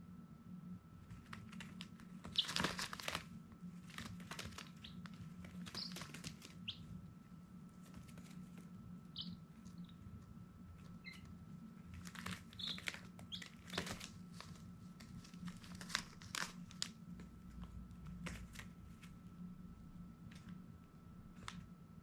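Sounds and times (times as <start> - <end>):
steady low hum: 0.0 - 22.0
scratchy rustling and clicking: 1.0 - 6.8, 10.8 - 19.2
baby chicks peeping: 1.3 - 7.1, 7.8 - 14.6.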